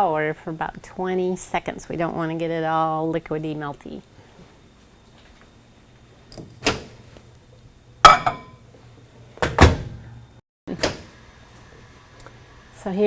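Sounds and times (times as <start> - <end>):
microwave door clunking: 9.4 - 10.1.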